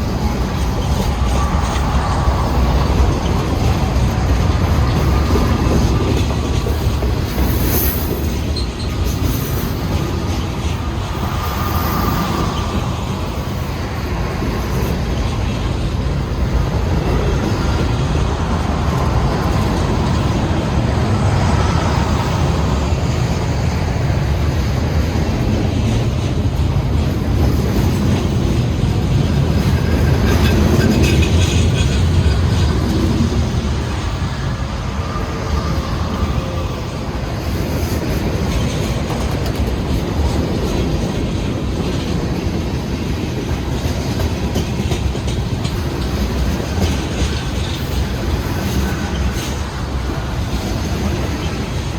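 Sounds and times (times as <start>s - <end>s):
freight train wheels rumbling: 0.0s - 51.9s.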